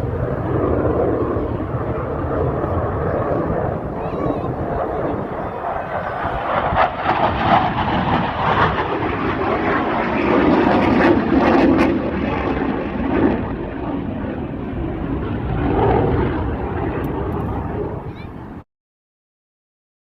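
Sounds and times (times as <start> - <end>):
airplane engine rumble: 0.0 - 18.6.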